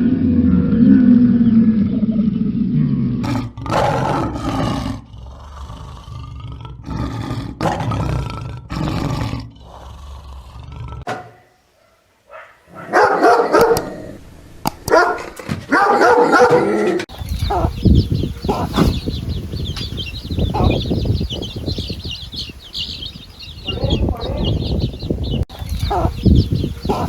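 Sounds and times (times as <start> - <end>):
farm animal calling loudly: 15.8 - 27.0.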